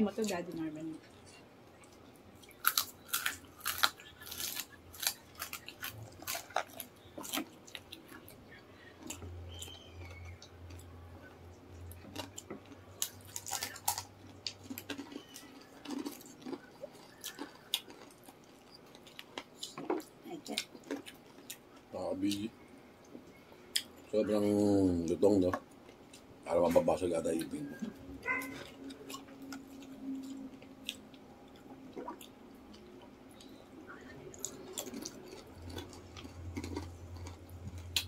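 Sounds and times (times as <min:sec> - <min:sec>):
crunching crispy chicken skin: 0:02.5 - 0:08.3, 0:12.0 - 0:19.6.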